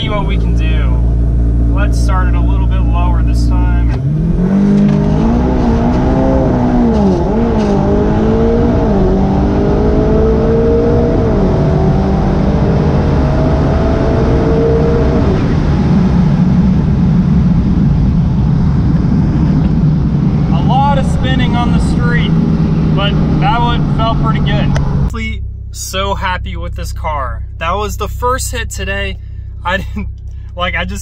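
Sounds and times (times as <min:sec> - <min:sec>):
wind and road noise: 0:00.0 - 0:25.2
turbocharged engine accelerating: 0:00.0 - 0:31.0
gearbox upshifts: 0:03.8 - 0:09.2.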